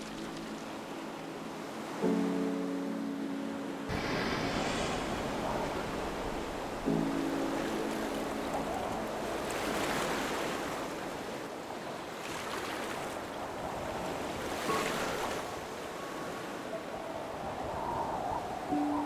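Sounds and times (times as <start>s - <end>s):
ocean waves washing in: 0.0s - 19.0s.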